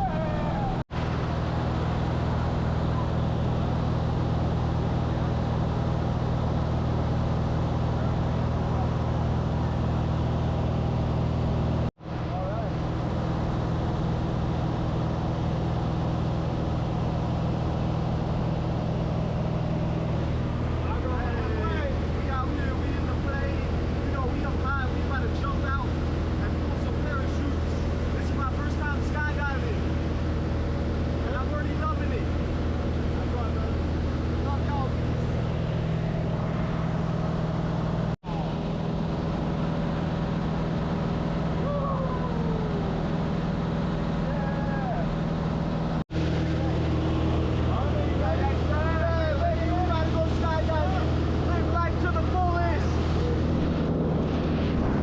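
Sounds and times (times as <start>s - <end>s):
aircraft engine drone: 0.0s - 55.0s.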